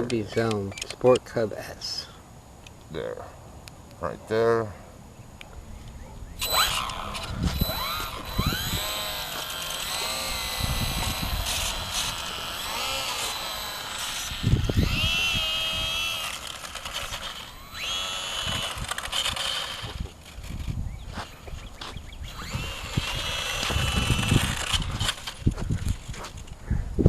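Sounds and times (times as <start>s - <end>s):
wind rumbling on microphone: 5.6s - 27.0s
model airplane motor whining: 6.4s - 26.0s.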